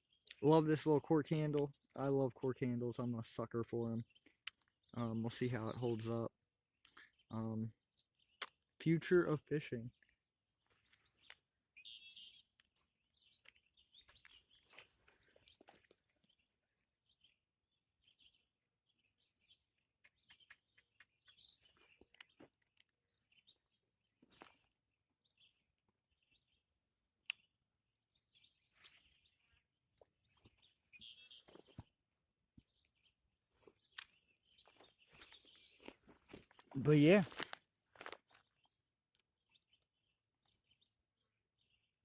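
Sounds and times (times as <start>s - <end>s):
faint bird chirps: 10.7s - 17.4s, 30.2s - 31.9s.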